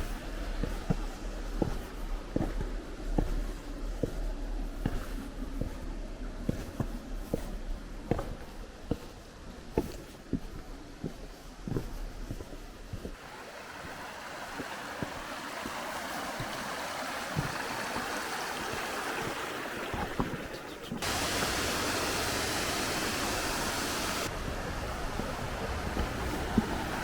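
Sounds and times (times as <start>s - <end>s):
stream water rushing: 13.2s - 27.0s.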